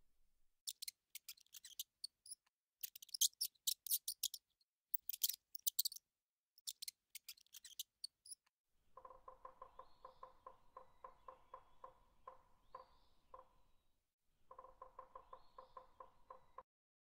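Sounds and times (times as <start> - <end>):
mice squeaking: 0.7 - 6.0, 6.6 - 8.5
woodpecker drumming: 9.0 - 13.6, 14.5 - 16.6.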